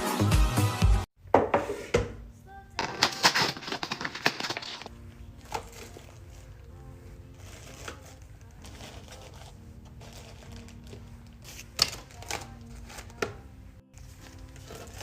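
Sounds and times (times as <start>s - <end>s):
faint background music: 1.4s - 15.0s
food packaging clattering: 2.8s - 6.7s, 7.3s - 13.4s, 14.0s - 15.0s.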